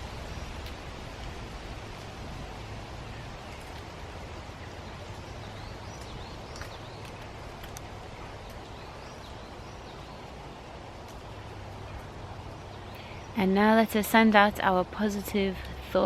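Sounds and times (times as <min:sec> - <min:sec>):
steady rushing noise: 0:00.0 - 0:16.0
small scattered clicks: 0:06.0 - 0:08.7.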